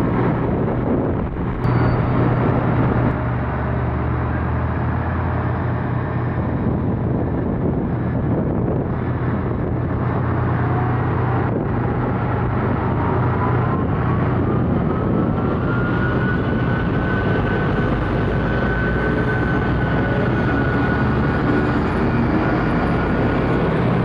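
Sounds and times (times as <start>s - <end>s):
train engine hum: 0.0s - 24.0s
faint rising whine: 0.1s - 5.4s.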